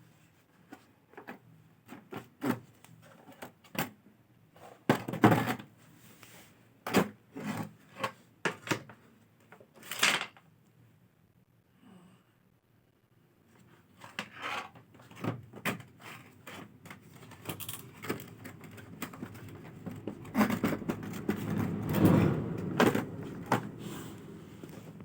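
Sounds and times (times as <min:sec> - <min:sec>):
objects clicking and knocking: 0:15.1 - 0:25.0.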